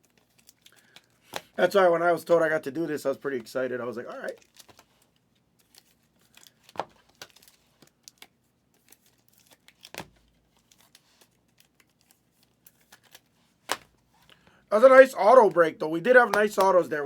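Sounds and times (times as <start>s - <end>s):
plastic packaging crinkling: 0.0s - 1.4s, 3.3s - 14.4s.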